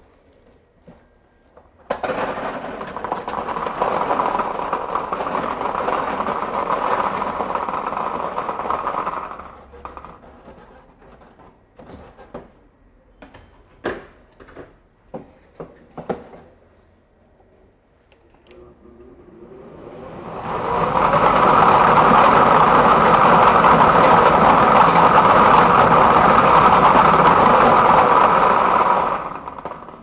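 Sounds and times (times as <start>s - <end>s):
balls rattling in a drum: 1.9s - 10.5s, 20.2s - 30.0s.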